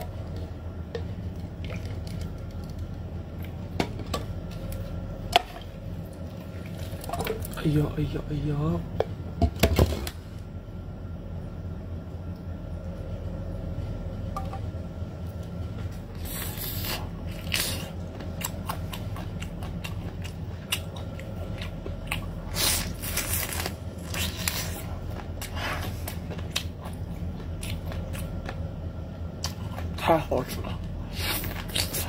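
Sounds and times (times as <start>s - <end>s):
low hum: 0.0s - 32.0s
chewing clicks and squishes: 16.8s - 28.7s, 29.3s - 30.0s.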